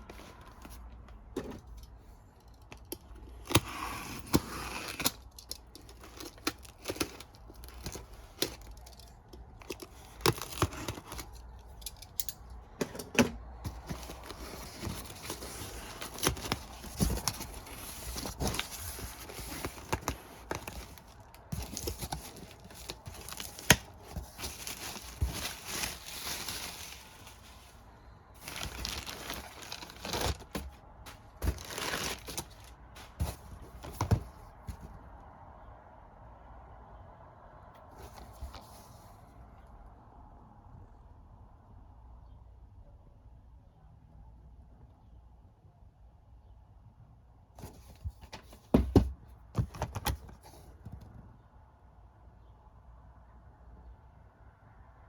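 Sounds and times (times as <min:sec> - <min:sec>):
disc cases clicking and knocking: 0:12.6 - 0:26.1, 0:28.6 - 0:34.9, 0:48.2 - 0:51.1
plastic and paper tearing: 0:28.4 - 0:34.1.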